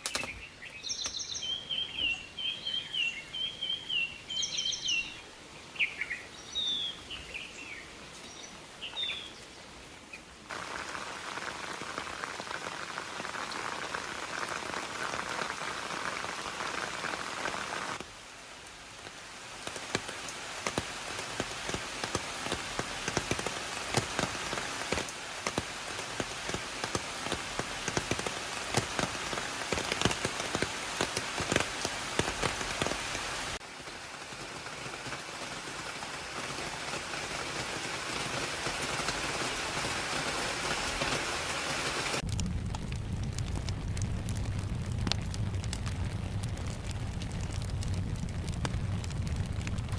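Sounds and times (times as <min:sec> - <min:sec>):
birds chirping: 0:00.0 - 0:10.3
rain falling: 0:00.0 - 0:49.9
raindrops striking close by: 0:10.3 - 0:49.9.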